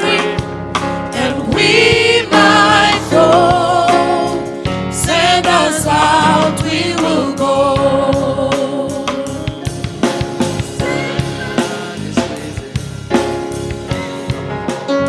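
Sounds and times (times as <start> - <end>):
drum kit beat: 0.0 - 15.0
keyboard chords: 0.0 - 15.0
guitar chords: 8.7 - 15.0.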